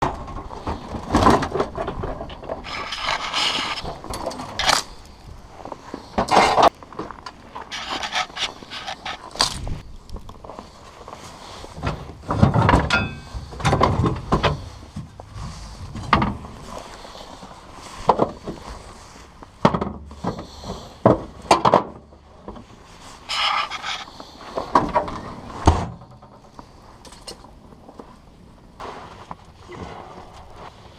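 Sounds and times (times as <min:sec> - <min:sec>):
tire chains clinking and rattling: 0:12.6 - 0:14.0.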